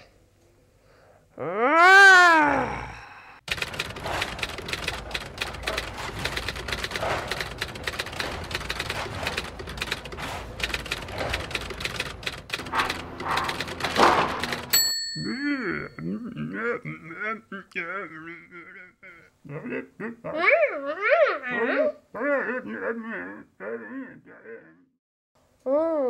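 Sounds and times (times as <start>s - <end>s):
plastic parts clicking and clattering: 3.5s - 14.8s
bell-like ding: 14.7s - 15.4s.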